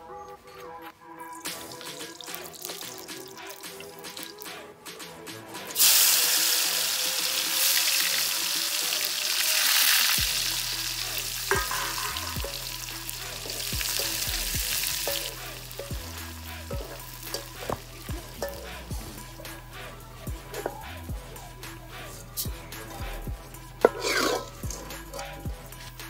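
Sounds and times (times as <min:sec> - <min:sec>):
oil sizzling in a wok: 0:01.4 - 0:04.5, 0:05.7 - 0:20.8, 0:23.8 - 0:26.0
metal spatula stirring: 0:10.3 - 0:20.8, 0:23.6 - 0:26.0.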